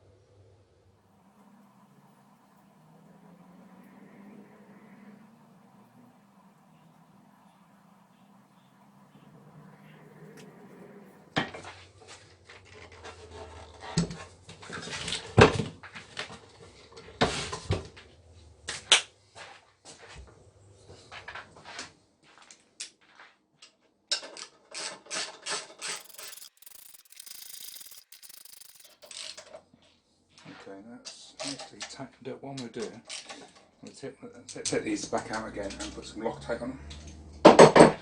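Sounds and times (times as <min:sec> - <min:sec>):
quick even ratchet clicks: 0:25.9 - 0:29.3.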